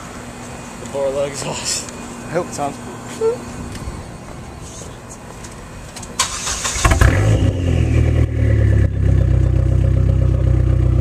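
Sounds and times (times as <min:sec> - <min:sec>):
car engine idling: 0:04.0 - 0:11.0
car starter cranking: 0:06.2 - 0:07.4.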